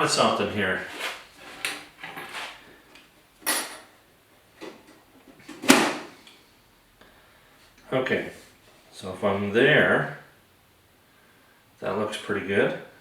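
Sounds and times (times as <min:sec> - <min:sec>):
scrapes and knocks of handling: 0:00.7 - 0:03.9.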